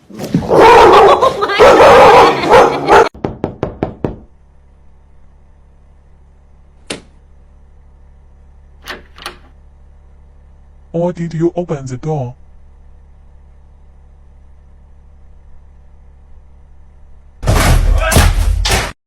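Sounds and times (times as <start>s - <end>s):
dog barking loudly: 0.5s - 3.2s.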